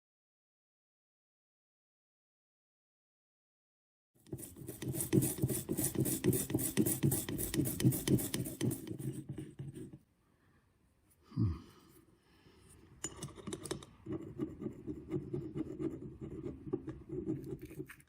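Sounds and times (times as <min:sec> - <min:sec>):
hand scrubbing a metal part: 0:04.3 - 0:10.1.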